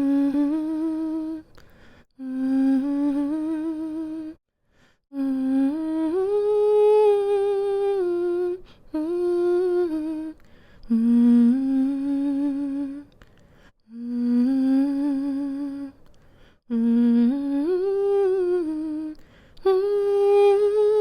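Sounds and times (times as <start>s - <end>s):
woman humming a lullaby: 16.7s - 21.0s.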